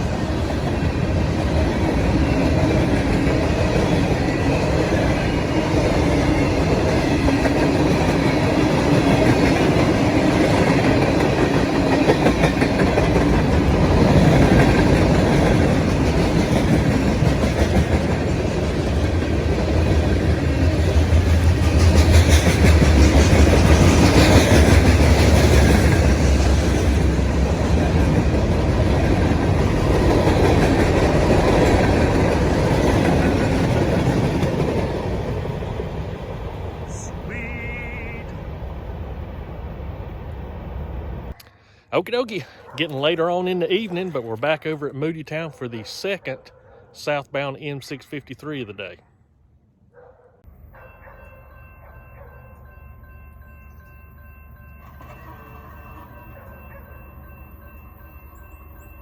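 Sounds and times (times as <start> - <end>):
train wheels clacking over rail joints: 0.0 - 35.2
heavy low train rumble: 0.0 - 41.4.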